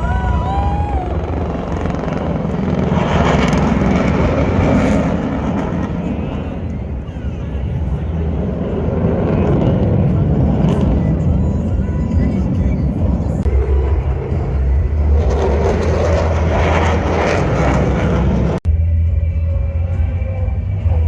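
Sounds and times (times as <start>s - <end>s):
military aircraft flying past: 0.0s - 18.6s.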